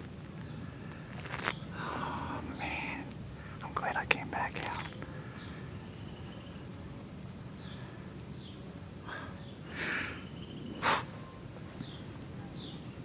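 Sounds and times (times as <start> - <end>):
rustling: 0.0 - 1.6
small birds chirping: 0.3 - 13.0.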